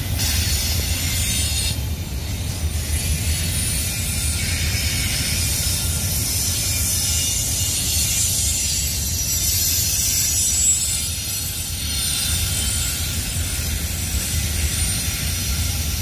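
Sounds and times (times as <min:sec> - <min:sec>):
train cars rattling: 0:00.0 - 0:16.0
train wheels rumbling on rail: 0:00.0 - 0:16.0.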